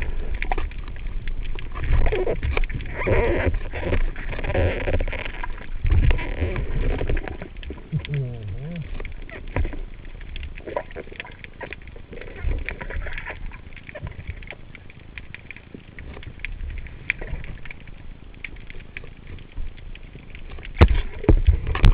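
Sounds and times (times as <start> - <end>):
faint underwater clicks and knocks: 0.0 - 21.9.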